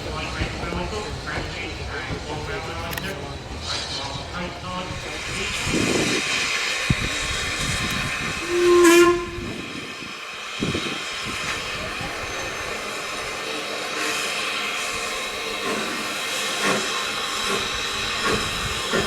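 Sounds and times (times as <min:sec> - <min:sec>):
steam hissing: 0:00.0 - 0:19.0
steam locomotive whistle toot: 0:06.9 - 0:13.2.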